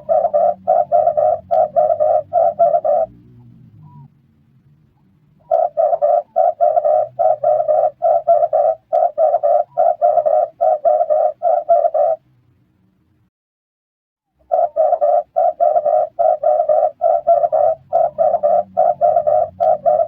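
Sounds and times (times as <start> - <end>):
dove cooing: 0.0 - 4.1, 5.4 - 12.2, 14.4 - 20.0.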